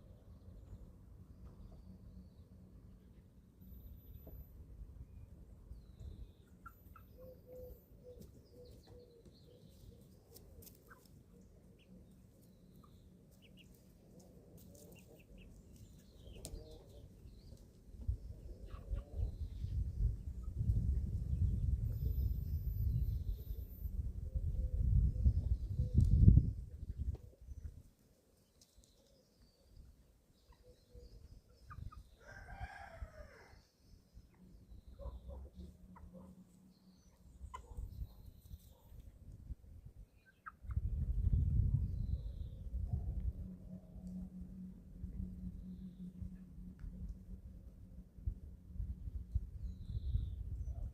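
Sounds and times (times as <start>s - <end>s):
chickens softly calling: 6.0s - 23.7s, 28.6s - 39.4s, 40.1s - 41.4s
chicks peeping: 11.7s - 21.7s, 30.4s - 32.4s, 40.2s - 41.4s
young cockerel crowing: 32.2s - 33.6s
low rumble: 40.7s - 50.9s.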